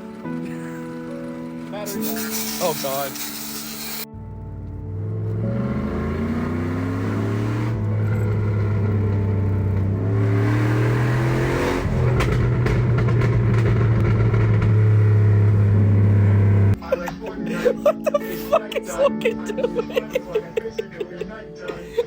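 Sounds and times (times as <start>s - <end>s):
engine accelerating through gears: 0.0s - 16.8s.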